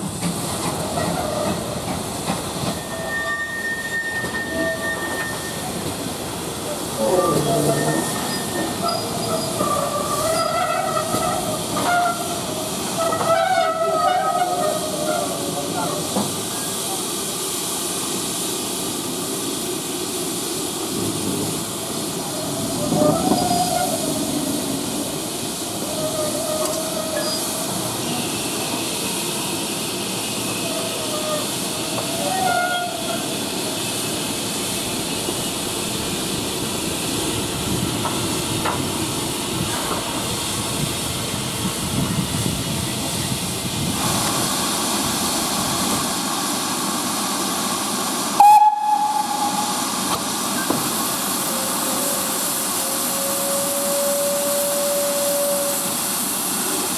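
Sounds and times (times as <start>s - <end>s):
steam locomotive hissing: 0.0s - 56.9s
brief whistle-like tone: 48.4s - 49.9s.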